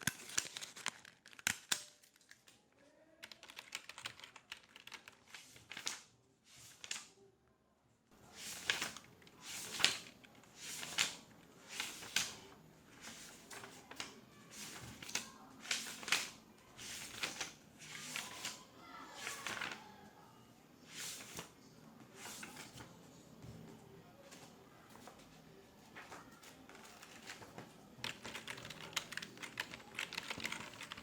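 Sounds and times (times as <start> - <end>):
soft rustling handling sounds: 8.1 - 31.0
faint voices: 8.2 - 31.0.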